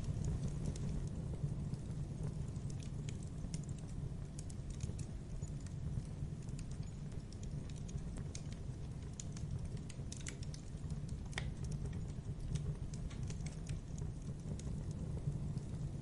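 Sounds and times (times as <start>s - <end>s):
campfire low rumble: 0.0s - 16.0s
wood crackling and popping: 0.0s - 16.0s.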